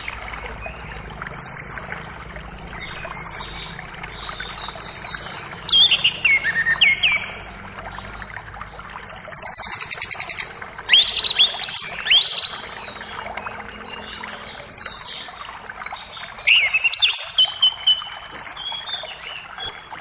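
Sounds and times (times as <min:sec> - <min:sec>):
forest creek rushing: 0:00.0 - 0:20.0
songbirds singing: 0:00.0 - 0:20.0.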